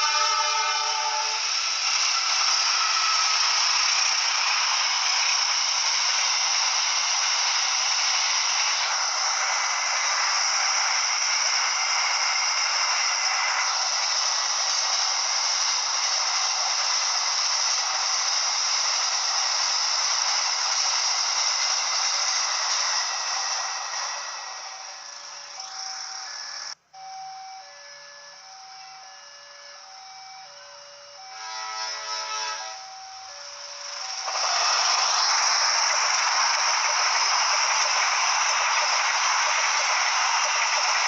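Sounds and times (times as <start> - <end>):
steady hissing noise: 0.0 - 26.8, 32.2 - 41.0.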